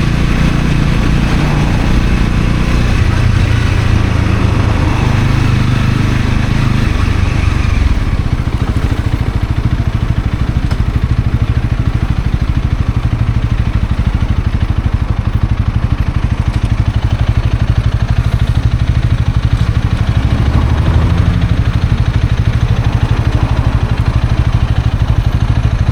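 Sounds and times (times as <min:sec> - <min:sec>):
rushing noise: 0:00.0 - 0:10.1, 0:17.0 - 0:25.8
motorcycle engine idling: 0:00.0 - 0:25.9.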